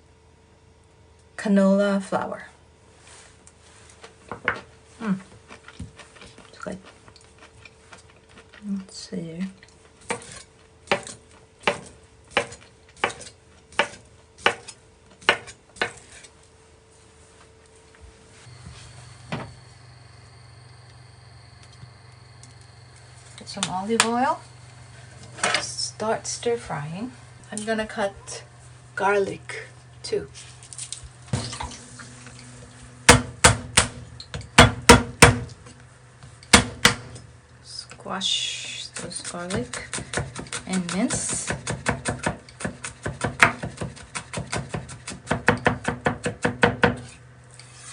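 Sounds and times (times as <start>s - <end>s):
knife chopping on cutting board: 10.1s - 16.2s, 39.3s - 47.1s.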